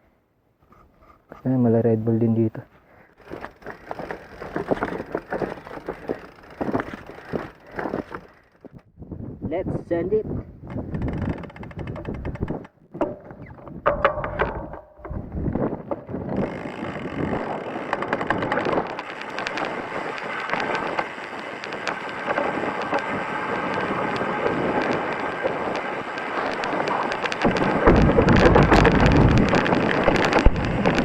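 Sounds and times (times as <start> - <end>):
tyres crunching over stones: 3.2 - 8.8, 15.4 - 31.0
bike rattling and clattering: 3.2 - 8.9, 10.6 - 31.0
wind on microphone: 8.8 - 31.0.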